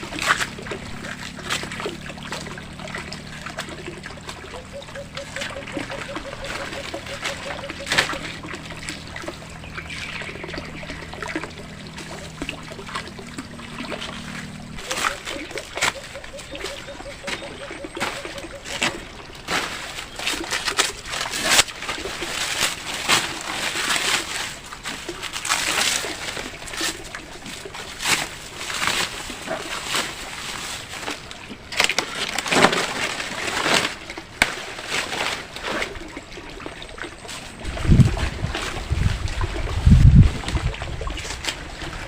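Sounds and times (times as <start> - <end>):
water sloshing and splashing: 0.0 - 42.0.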